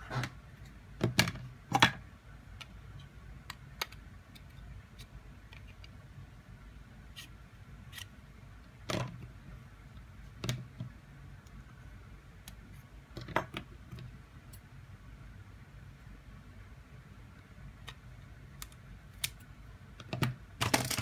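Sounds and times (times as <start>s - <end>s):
plastic clicks and snaps: 18.6s - 21.0s.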